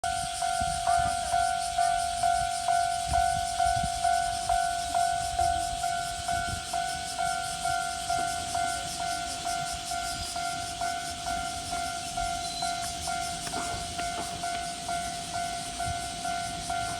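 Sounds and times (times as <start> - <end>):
level crossing warning bell: 0.0 - 16.9
low rumble of train: 0.0 - 16.9.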